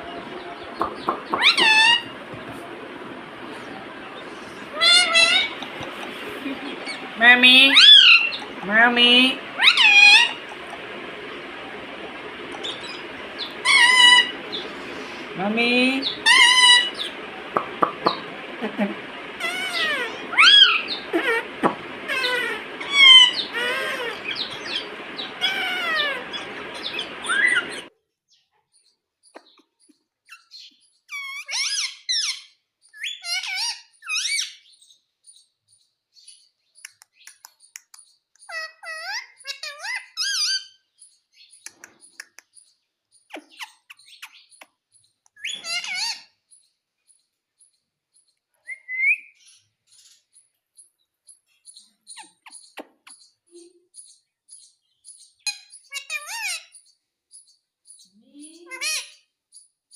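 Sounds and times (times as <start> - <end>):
parrot chirping: 0.0 - 2.3, 3.4 - 27.9, 30.3 - 34.7, 38.4 - 40.8, 45.4 - 46.3, 55.3 - 56.8
parrot rising whistle: 1.2 - 2.2, 13.6 - 14.6, 19.4 - 21.4, 22.1 - 27.9.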